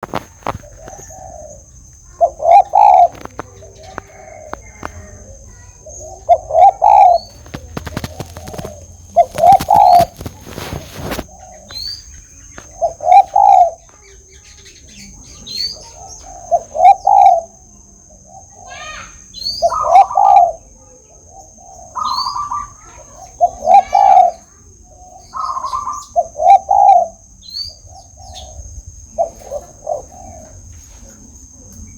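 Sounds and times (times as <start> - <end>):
rustling: 0.0 - 1.6, 2.2 - 13.2
dove cooing: 0.0 - 14.2, 14.9 - 18.8, 19.5 - 31.8
small birds chirping: 0.0 - 31.9.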